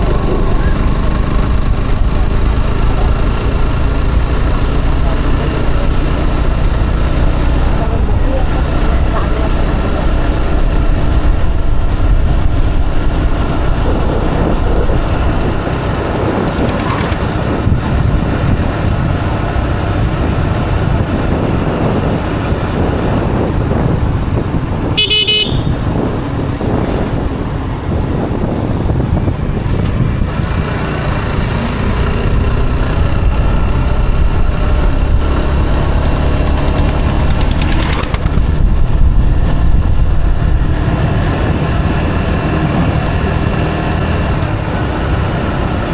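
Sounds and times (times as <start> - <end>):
motorcycle engine and wind: 0.0 - 45.9
vehicle horn toot: 25.0 - 26.0.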